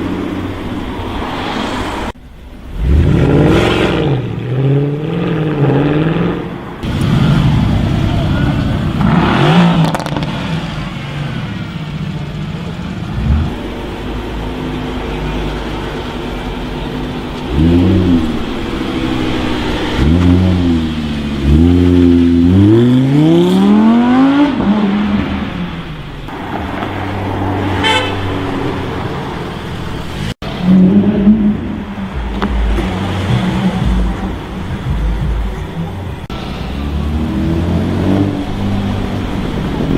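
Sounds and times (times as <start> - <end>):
sports car engine revving: 0.0 - 10.8, 13.0 - 26.6, 30.4 - 39.9
car horn toot: 27.8 - 28.4.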